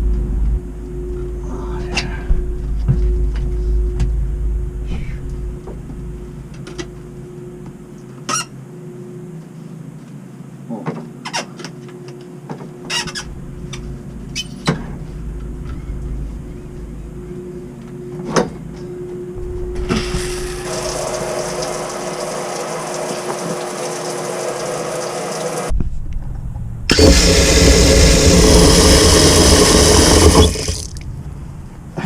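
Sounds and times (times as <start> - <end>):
shower head spraying water: 19.9 - 25.7, 26.9 - 31.0.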